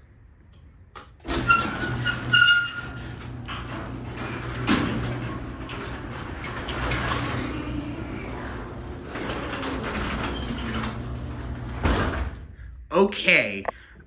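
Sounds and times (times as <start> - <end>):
garage door rolling down: 1.1 - 12.7
garage door opener motor hum: 1.2 - 12.5
short high squeaks: 1.3 - 3.3.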